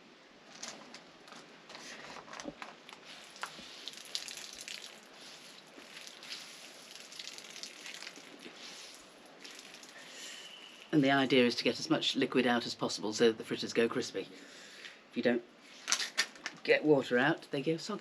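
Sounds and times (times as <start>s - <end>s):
water dripping onto gravel: 2.9s - 8.6s, 9.3s - 10.2s
wet cloth squishing: 3.0s - 10.2s.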